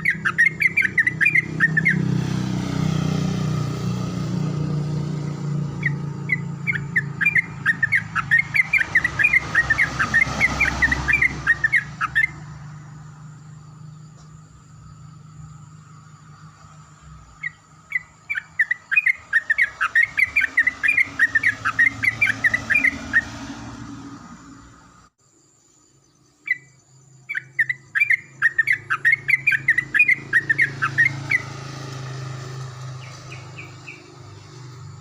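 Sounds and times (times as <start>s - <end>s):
bulbul singing bubbling chirps: 0.0s - 2.1s, 5.7s - 12.5s, 26.3s - 31.5s.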